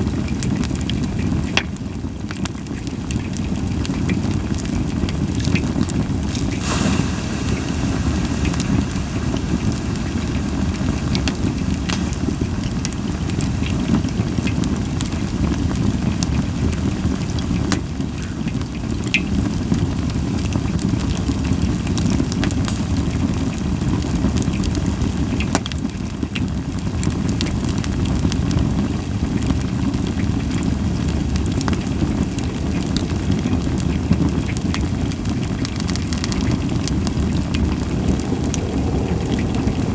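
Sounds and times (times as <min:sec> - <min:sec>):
campfire crackling and popping: 0:04.5 - 0:19.7, 0:31.1 - 0:39.9.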